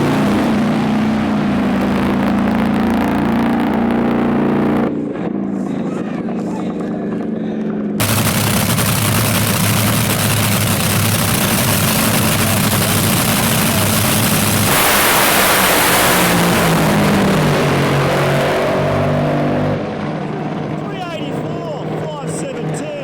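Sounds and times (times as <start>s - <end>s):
drag racing engine at high revs: 0.0s - 5.6s, 8.0s - 20.8s
rush of noise: 8.0s - 23.0s.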